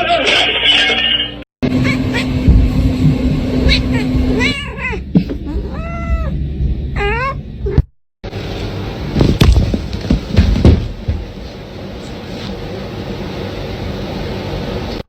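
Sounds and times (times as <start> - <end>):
cat meowing: 1.8 - 2.3, 3.6 - 6.4
loud thumps: 9.1 - 11.5.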